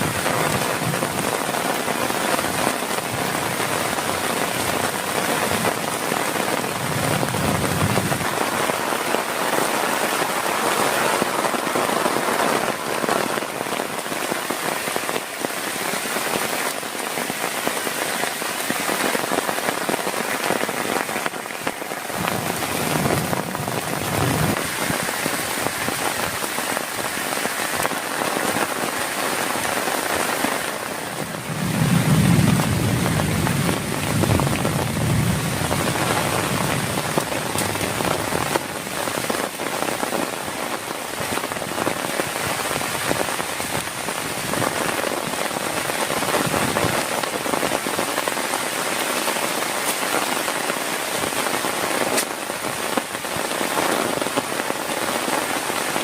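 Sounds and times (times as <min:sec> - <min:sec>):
heavy rain pouring: 0:00.0 - 0:56.0
low rumbles: 0:31.4 - 0:37.1.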